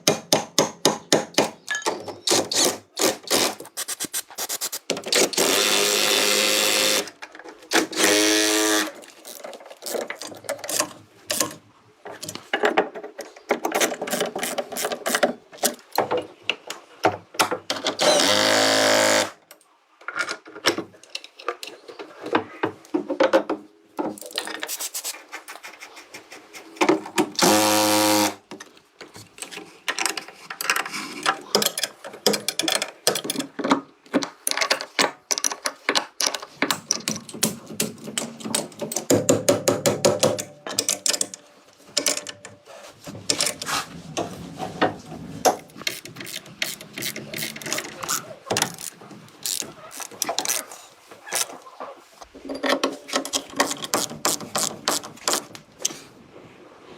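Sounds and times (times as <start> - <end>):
power tool motor buzzing: 5.3 - 7.1, 7.8 - 9.0, 18.0 - 19.4, 27.4 - 28.4.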